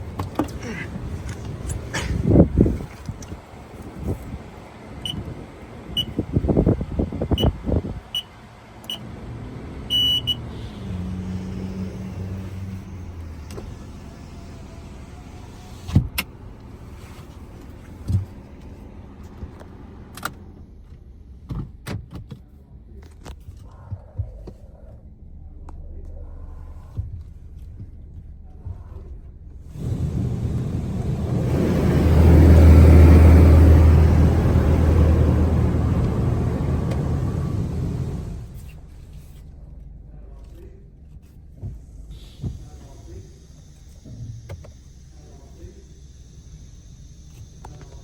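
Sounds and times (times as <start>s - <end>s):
car engine idling: 0.0s - 18.6s, 29.7s - 38.7s
short high electronic beeps: 9.9s - 10.4s
power window motor humming: 29.7s - 38.6s.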